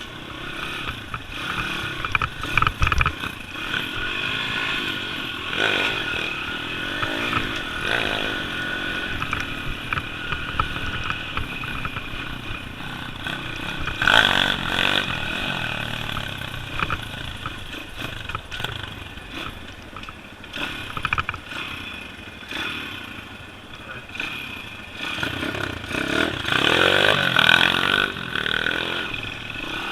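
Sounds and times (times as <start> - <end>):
dirt bike engine running: 0.0 - 29.9
bike clatter and knocks: 2.0 - 3.2.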